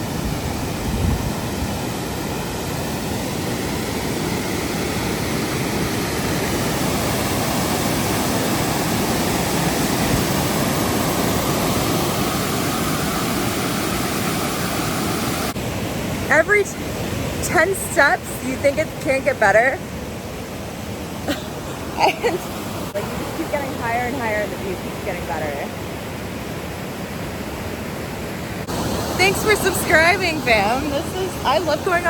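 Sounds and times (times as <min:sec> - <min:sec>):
water cascading over rocks: 0:28.6 - 0:32.0.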